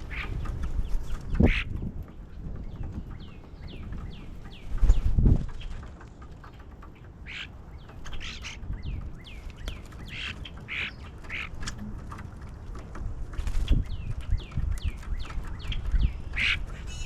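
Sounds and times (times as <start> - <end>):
harsh raspy bird calls: 0.0 - 1.7, 7.0 - 9.4, 10.0 - 11.6, 16.2 - 17.0
birds chirping: 0.0 - 17.0.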